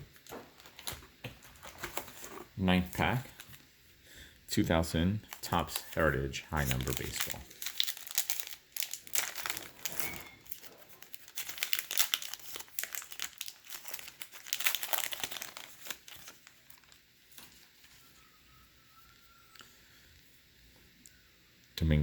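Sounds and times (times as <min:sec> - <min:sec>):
foil wrapper tearing and crinkling: 0:00.1 - 0:03.6, 0:05.2 - 0:17.8.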